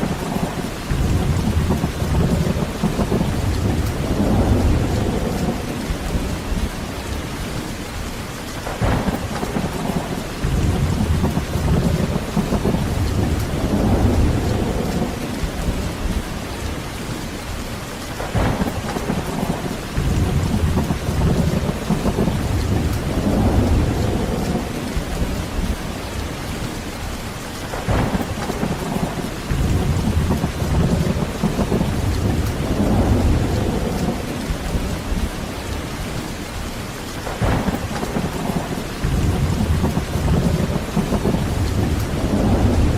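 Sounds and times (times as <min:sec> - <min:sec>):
heavy rain: 0:00.0 - 0:42.9
thunder rumbling: 0:00.0 - 0:42.9
sharp thunder crack: 0:08.6 - 0:15.6, 0:18.2 - 0:25.7, 0:27.7 - 0:34.9, 0:37.2 - 0:42.9.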